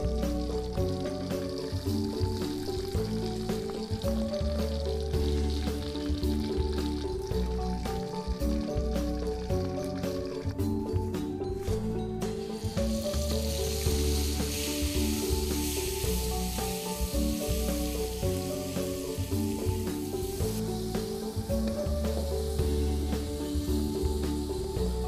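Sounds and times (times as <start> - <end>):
background music: 0.0 - 25.0
spices sizzling in hot oil: 0.0 - 25.0.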